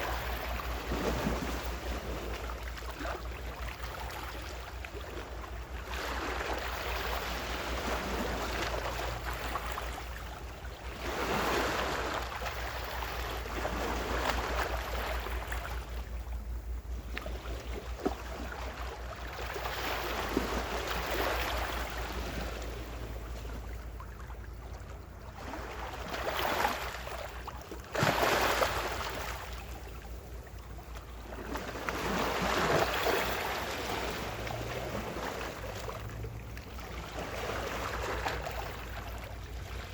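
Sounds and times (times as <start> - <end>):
ocean waves washing onto shore: 0.0 - 23.6, 25.4 - 39.9
steady low rumble: 12.1 - 26.3, 28.7 - 39.9.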